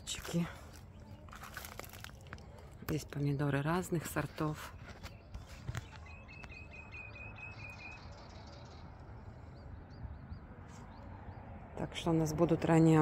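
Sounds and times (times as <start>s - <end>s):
faint higher bird chirps: 4.8s - 11.4s.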